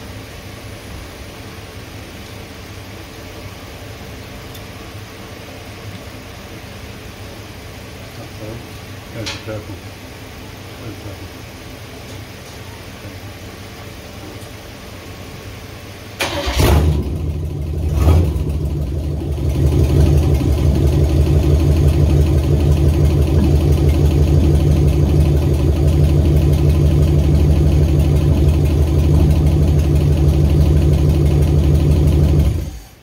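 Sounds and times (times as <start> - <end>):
car engine starting and idling: 16.1 - 33.0.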